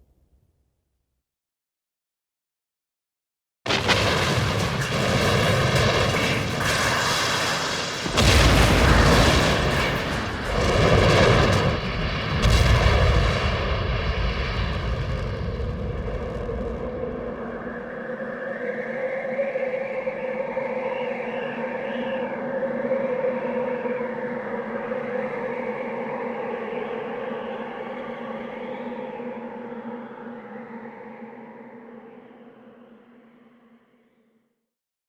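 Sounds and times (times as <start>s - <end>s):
heavy explosion booms: 3.7s - 17.7s
deep rumble: 8.2s - 18.0s.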